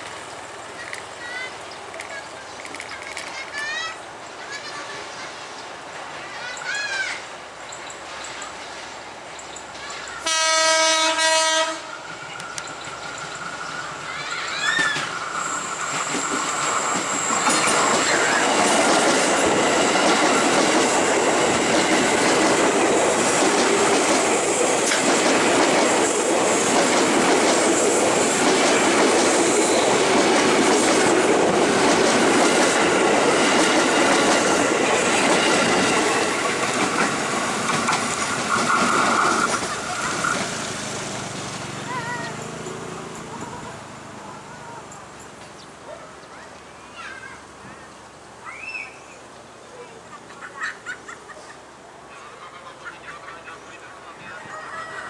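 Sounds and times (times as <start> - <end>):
electric train passing: 0.0 - 45.7
wheels clattering over rail joints: 12.2 - 44.1.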